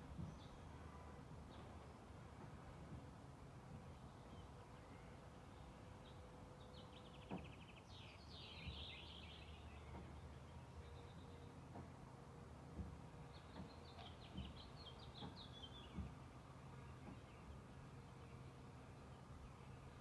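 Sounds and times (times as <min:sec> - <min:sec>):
small birds calling: 0:13.2 - 0:20.0.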